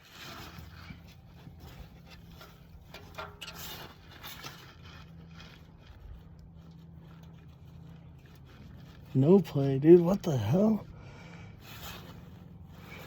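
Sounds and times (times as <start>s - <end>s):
hand tools scraping and clicking: 0.0s - 5.2s
steady low hum: 0.0s - 13.0s.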